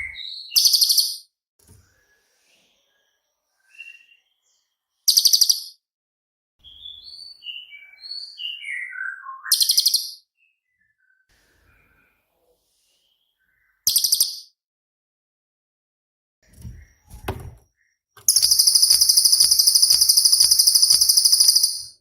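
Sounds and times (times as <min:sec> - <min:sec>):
bird whistled notes: 0:18.2 - 0:22.0
songbird rattling trills: 0:18.2 - 0:22.0.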